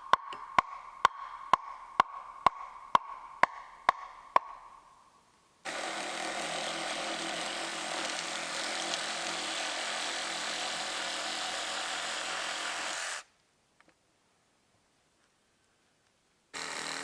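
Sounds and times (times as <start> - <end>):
power tool motor running: 5.7 - 13.3, 16.6 - 17.0.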